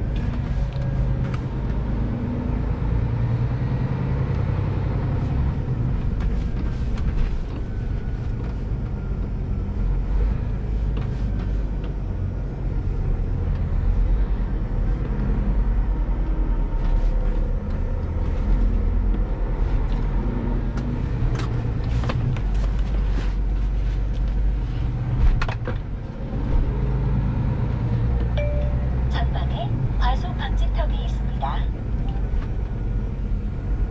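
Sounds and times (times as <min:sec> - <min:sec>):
truck diesel engine running: 0:26.0 - 0:33.9.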